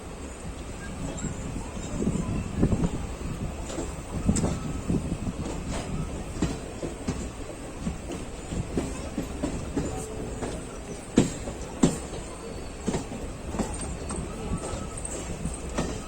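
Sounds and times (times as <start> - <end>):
train coach rumble: 0.0 - 16.0
wheels clacking over rail joints: 3.6 - 16.0.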